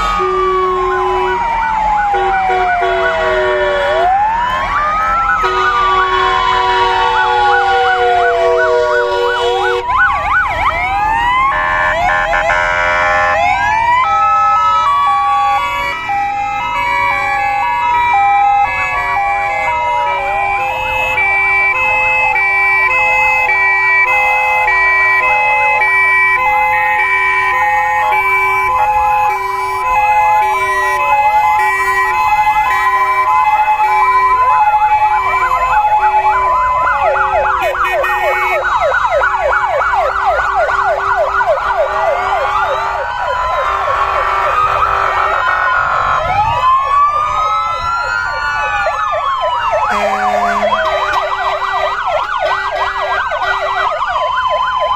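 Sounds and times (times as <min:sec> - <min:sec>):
fast yelping siren: 0:00.0 - 0:54.9
two-tone fire engine sirens: 0:00.0 - 0:54.9
wailing sirens: 0:00.0 - 0:54.9.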